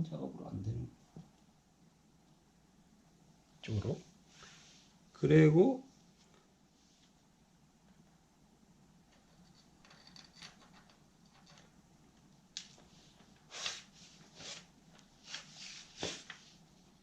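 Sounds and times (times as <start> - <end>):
scraping and rustling handling: 9.1 - 16.8.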